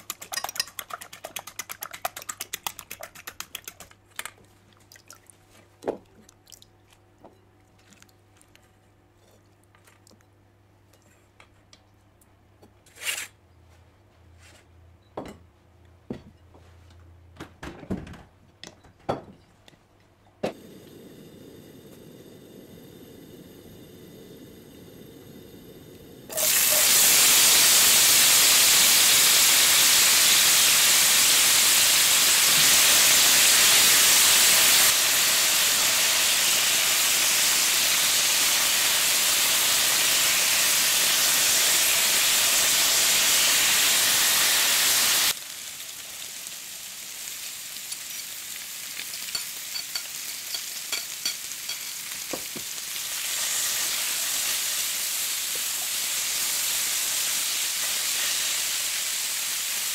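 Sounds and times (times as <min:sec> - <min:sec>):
potatoes sizzling in oil: 0:20.5 - 0:59.9.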